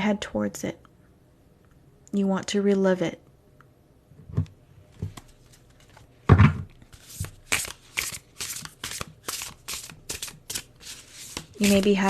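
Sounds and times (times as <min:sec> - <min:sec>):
cards shuffling: 0:06.7 - 0:12.0.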